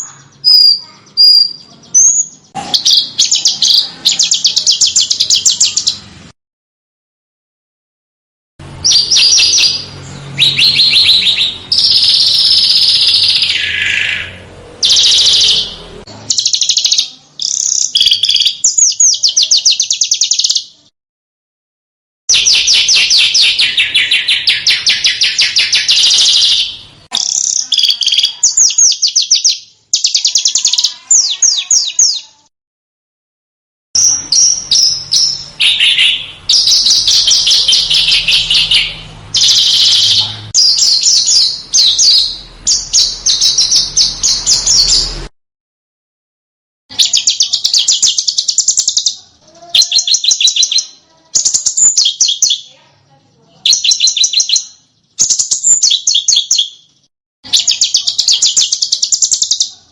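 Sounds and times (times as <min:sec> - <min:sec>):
songbirds trilling and chattering: 0:00.0 - 0:06.3, 0:08.6 - 0:20.9, 0:22.3 - 0:32.5, 0:34.0 - 0:45.3, 0:46.9 - 0:59.9.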